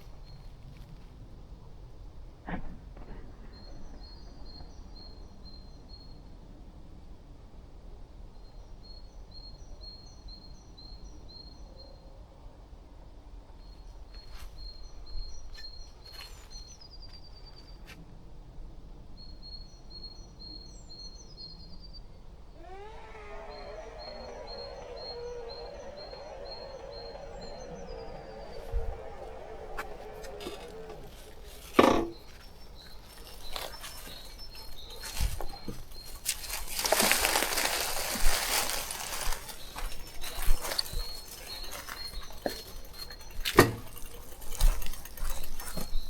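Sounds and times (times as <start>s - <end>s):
bird calling high notes: 22.6s - 44.2s
sharp clicks: 22.6s - 46.0s.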